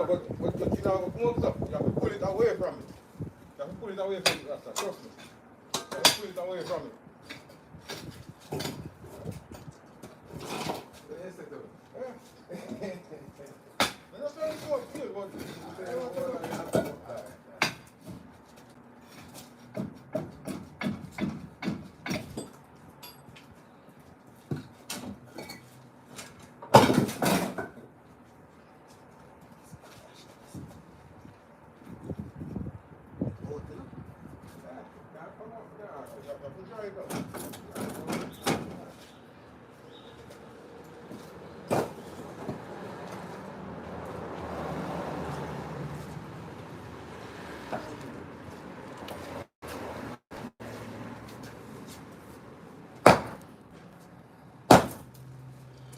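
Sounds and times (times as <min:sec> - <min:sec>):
hand tools knocking on concrete: 0:19.7 - 0:22.6
passing vehicle: 0:40.4 - 0:52.4, 0:55.0 - 0:55.9.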